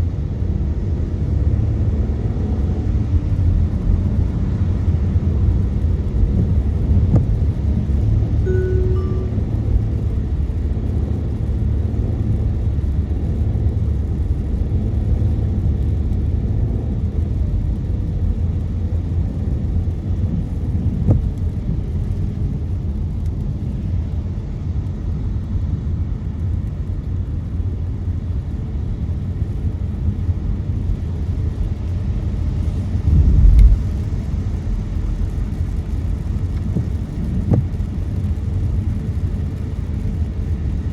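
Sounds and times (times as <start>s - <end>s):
car road rumble on wet streets: 0.0s - 40.9s
brief beep: 8.5s - 9.7s.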